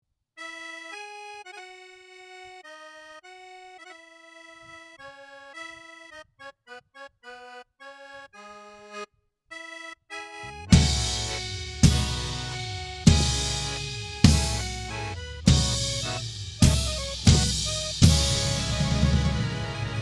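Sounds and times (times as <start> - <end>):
accordion playing circus melody: 0.4 - 20.0
drum and cymbal hit: 10.7 - 20.0
full band playing: 10.7 - 20.0.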